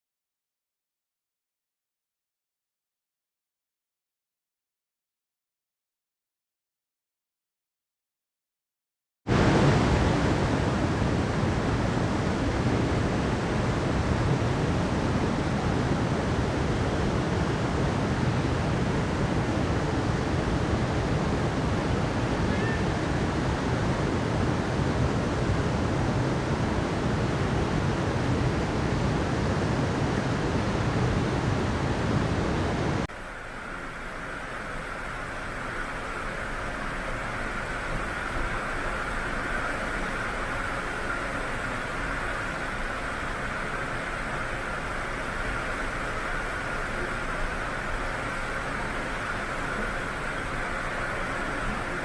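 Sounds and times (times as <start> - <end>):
waves breaking: 33.0 - 52.0.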